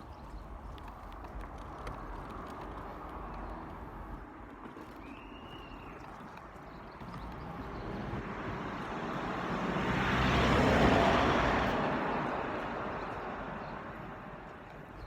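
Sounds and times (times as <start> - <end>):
footsteps clicking: 0.0 - 8.9
wind with low rumble: 0.0 - 15.0.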